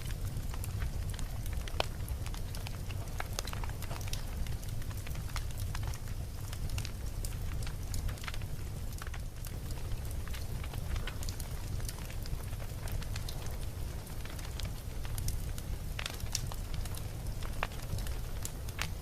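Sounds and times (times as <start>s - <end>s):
burning wood crackling and popping: 0.0s - 19.0s
campfire flames rumbling: 0.0s - 19.0s.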